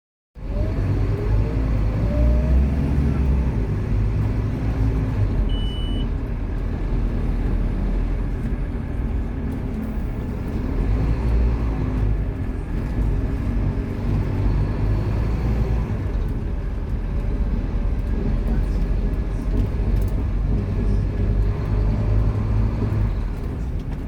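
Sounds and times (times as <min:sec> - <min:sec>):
diesel bus engine rumbling: 0:00.4 - 0:24.0
short high beep: 0:05.5 - 0:06.1.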